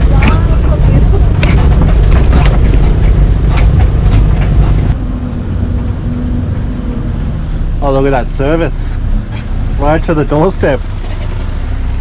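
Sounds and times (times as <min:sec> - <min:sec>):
knocks and rattles: 0:00.0 - 0:05.0
truck engine and road rumble: 0:00.0 - 0:12.0.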